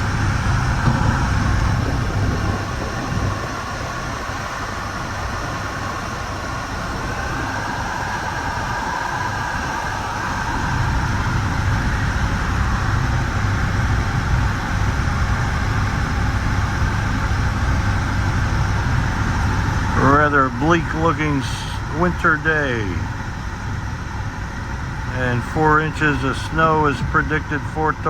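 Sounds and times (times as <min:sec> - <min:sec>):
train wheels rumbling on rails: 0:00.0 - 0:22.4.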